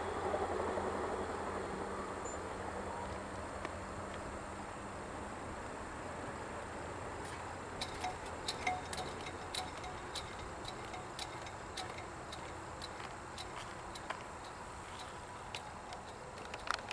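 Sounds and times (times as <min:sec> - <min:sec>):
railroad crossing bell ringing: 0:07.8 - 0:13.6.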